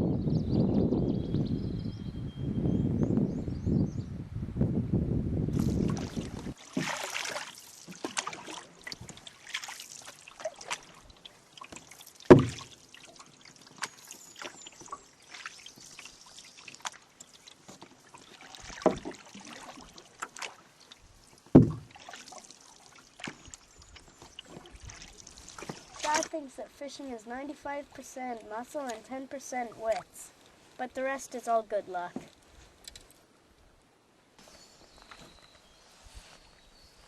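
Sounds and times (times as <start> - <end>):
paddle splashes: 5.6 - 32.4
water trickling and dripping: 5.6 - 33.0
sharp knocks: 12.3 - 12.6, 21.6 - 22.0.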